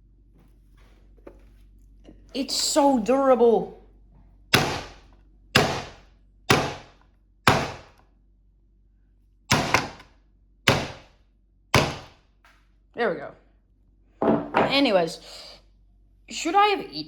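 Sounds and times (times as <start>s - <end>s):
hammer striking hard pizza: 4.5s - 8.0s, 9.5s - 10.0s, 10.7s - 11.1s, 11.8s - 12.2s.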